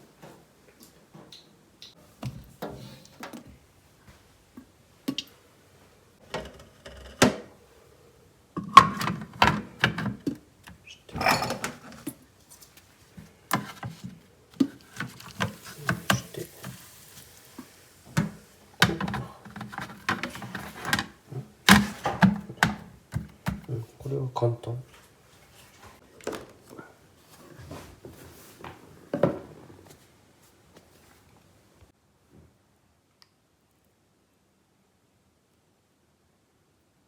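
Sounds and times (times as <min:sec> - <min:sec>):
plastic parts knocking and clicking: 0:08.6 - 0:10.8, 0:18.2 - 0:23.7
faint hiss: 0:14.8 - 0:19.5.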